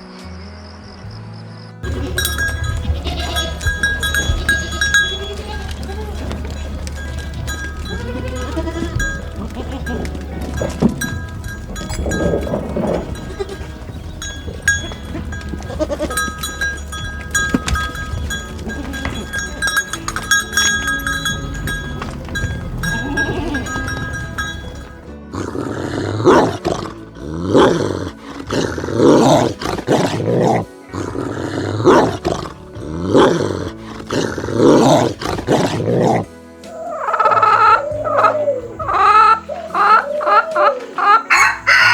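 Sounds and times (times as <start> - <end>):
steady ringing tones: 1.8 - 25.2
low hum: 1.8 - 29.6
big cat roaring: 5.3 - 16.2, 25.3 - 41.0.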